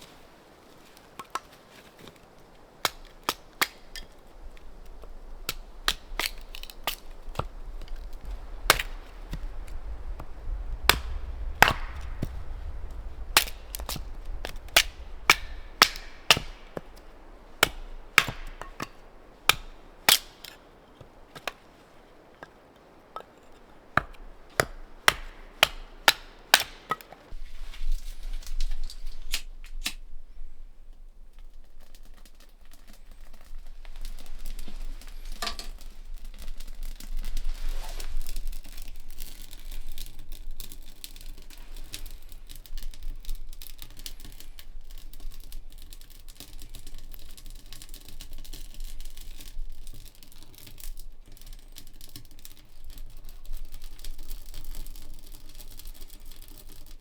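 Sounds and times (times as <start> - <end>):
sharp knocks and cracks: 0.8 - 27.4.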